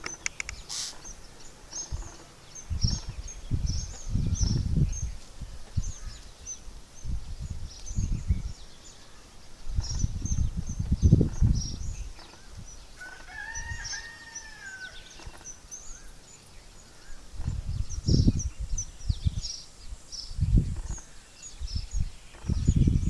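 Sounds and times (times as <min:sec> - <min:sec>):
rooster crowing: 0:13.0 - 0:15.1.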